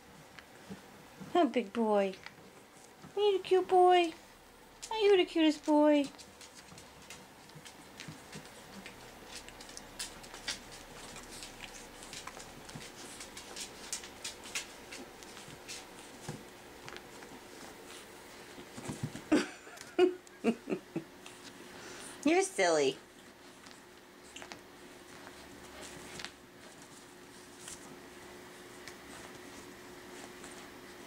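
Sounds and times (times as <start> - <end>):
paws and claws scuffling: 5.5 - 19.9, 23.0 - 31.0.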